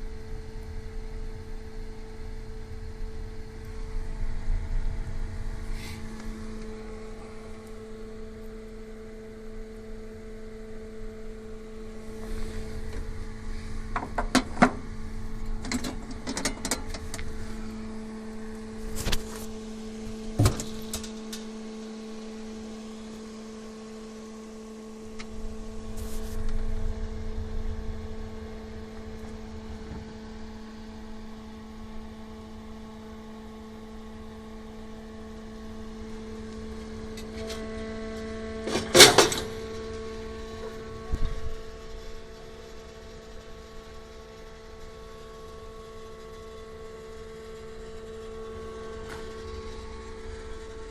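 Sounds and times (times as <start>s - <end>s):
low rumble: 0.0s - 32.6s
two-tone mechanical hum: 0.0s - 50.9s
sharp clicks and knocks: 13.9s - 14.9s, 15.6s - 17.3s.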